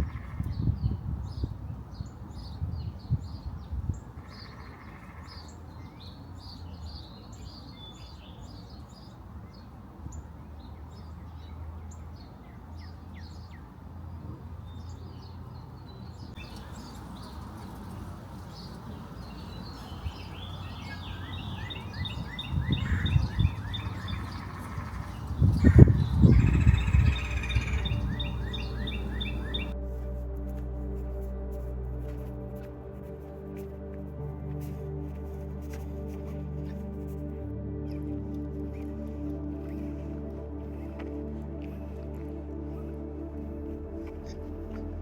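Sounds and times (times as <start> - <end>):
rapid trilled bird song: 0.0 - 13.7, 14.7 - 29.8
small birds chirping: 0.0 - 29.8.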